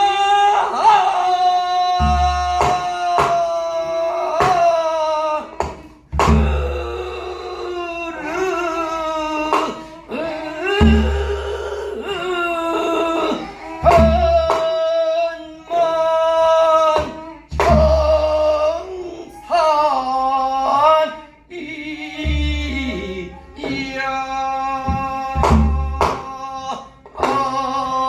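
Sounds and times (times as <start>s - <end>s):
person singing long notes: 0.0s - 28.0s
sharp drum strokes: 5.6s - 7.0s.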